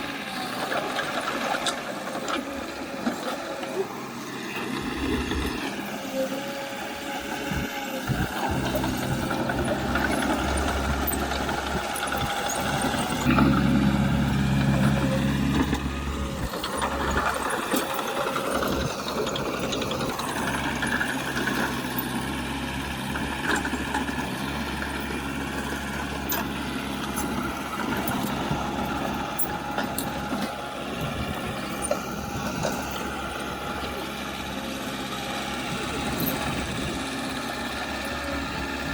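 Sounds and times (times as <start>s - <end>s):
heavy machinery diesel engine: 0.0s - 38.9s.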